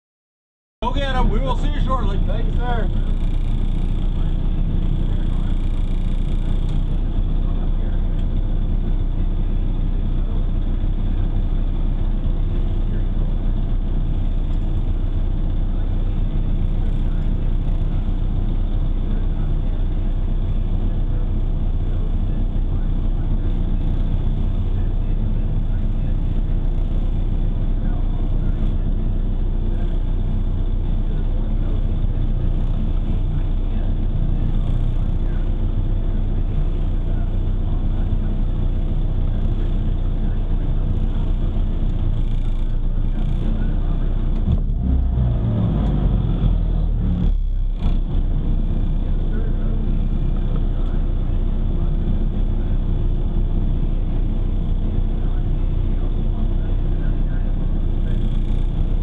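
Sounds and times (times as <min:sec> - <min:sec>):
race car engine running: 0:00.8 - 0:59.0.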